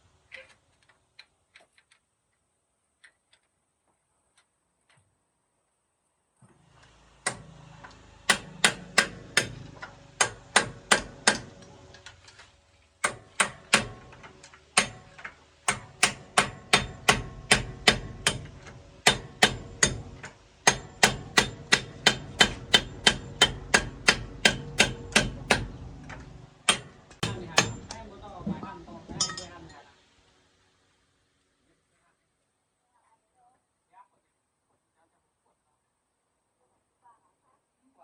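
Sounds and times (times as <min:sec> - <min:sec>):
hammer striking metal: 0:08.2 - 0:11.7, 0:13.0 - 0:28.0, 0:29.2 - 0:29.6.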